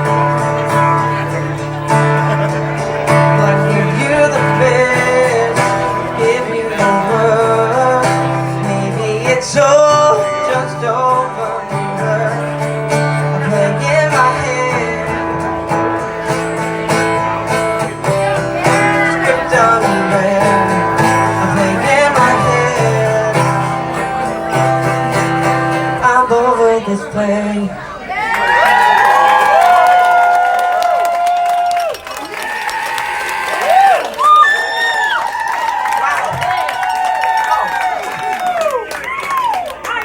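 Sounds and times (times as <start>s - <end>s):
person singing: 0.0s - 27.8s
strummed guitar: 0.0s - 27.8s.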